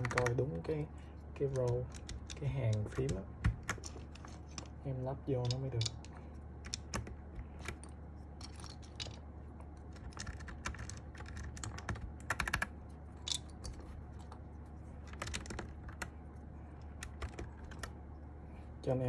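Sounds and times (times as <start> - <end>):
keycaps clicking onto keyboard: 0.0 - 0.4, 1.5 - 4.0, 9.9 - 12.7, 15.1 - 16.1.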